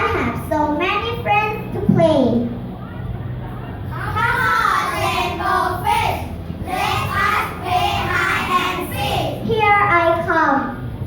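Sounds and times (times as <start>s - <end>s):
children singing: 4.1s - 9.4s.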